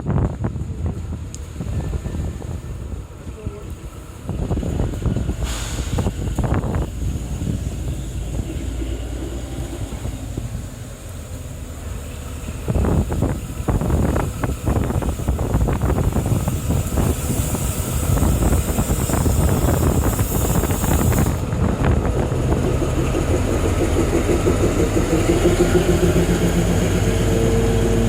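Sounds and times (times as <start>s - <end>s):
train clatter: 0.0s - 28.0s
train rumble: 0.0s - 28.0s
heavy rain hiss: 2.3s - 21.8s.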